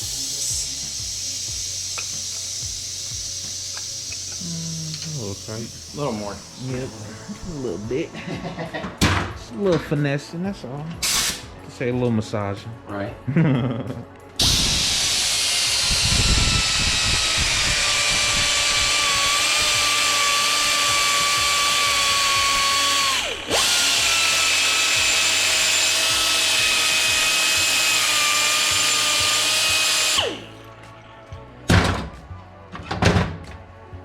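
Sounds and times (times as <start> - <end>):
rotary power tool whining: 14.4 - 30.8.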